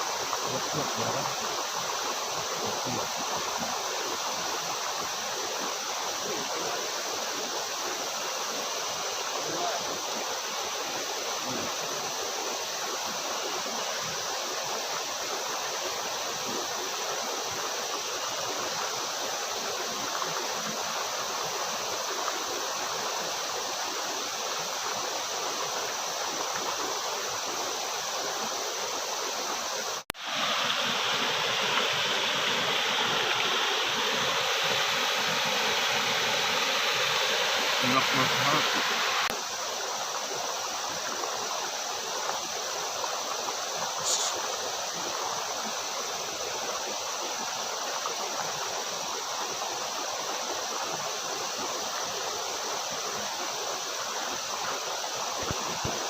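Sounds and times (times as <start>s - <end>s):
waterfall roaring: 29.9s - 39.5s, 40.2s - 45.2s.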